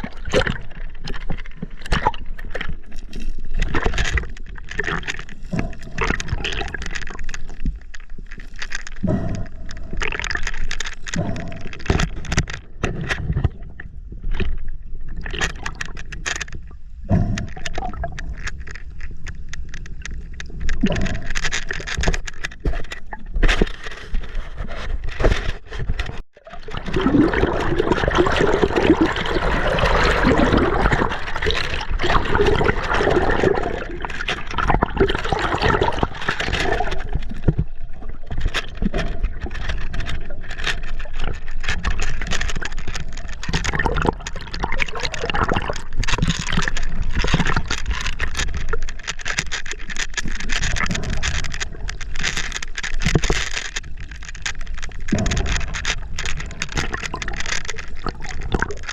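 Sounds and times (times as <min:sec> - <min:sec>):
water splashing and gurgling: 0:00.0 - 0:58.9
knocks and scrapes on camera: 0:17.3 - 0:26.2.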